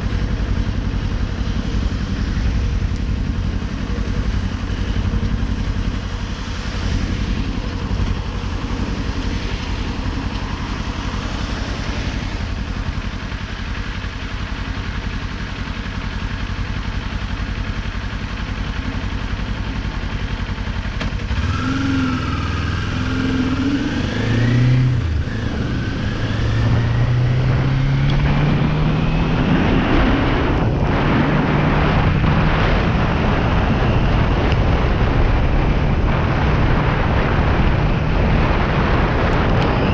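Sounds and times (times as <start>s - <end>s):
motorcycle engine accelerating: 0.0s - 39.9s
wind noise: 21.6s - 39.9s.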